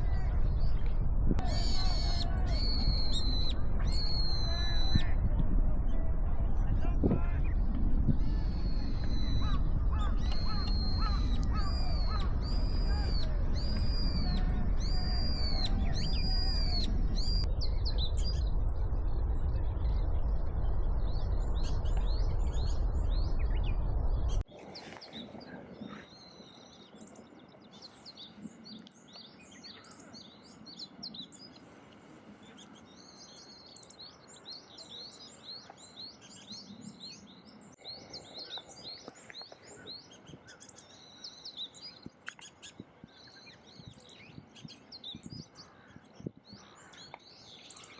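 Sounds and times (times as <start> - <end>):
loud low rumble: 0.0 - 24.4
songbirds chirping: 0.0 - 47.9.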